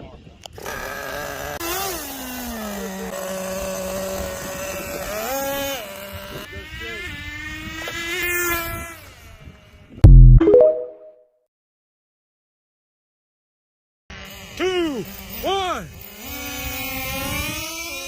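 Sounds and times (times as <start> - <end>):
rc car motor whining: 0.5 - 9.9, 14.1 - 18.0.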